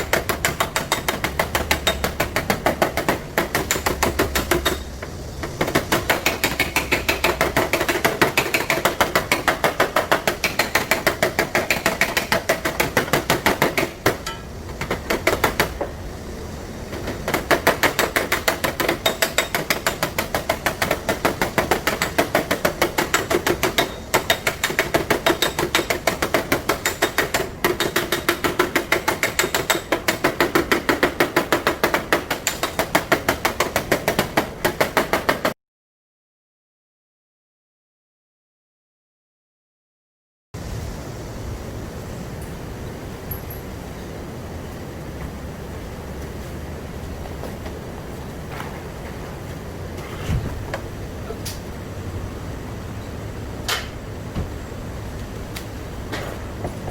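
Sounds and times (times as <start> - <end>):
hammer tapping on sheet metal: 0.0 - 15.9, 16.9 - 35.6.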